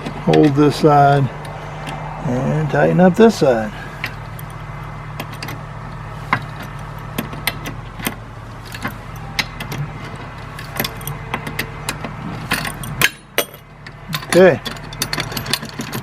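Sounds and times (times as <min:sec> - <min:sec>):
low hum: 0:00.0 - 0:16.0
wrenches clicking on a nut: 0:06.3 - 0:16.0.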